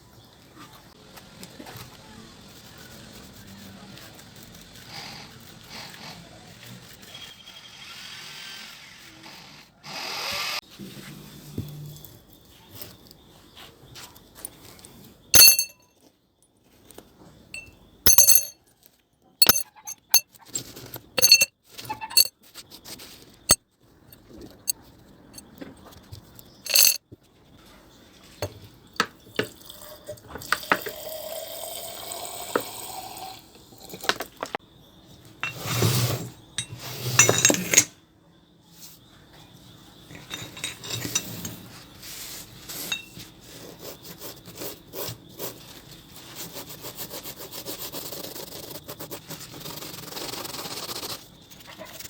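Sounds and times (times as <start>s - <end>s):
small hard parts clinking: 15.4s - 15.8s, 17.6s - 18.6s, 19.4s - 20.2s, 21.2s - 22.3s, 26.7s - 27.0s.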